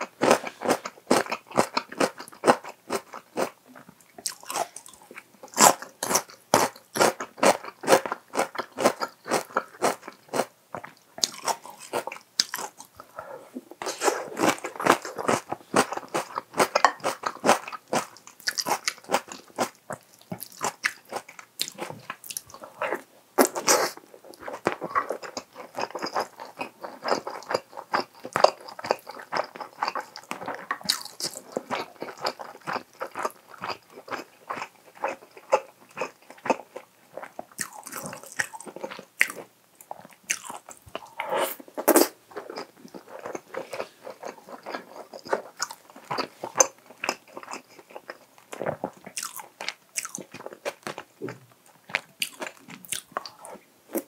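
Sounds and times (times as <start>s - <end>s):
close-miked chewing: 0.0s - 54.0s.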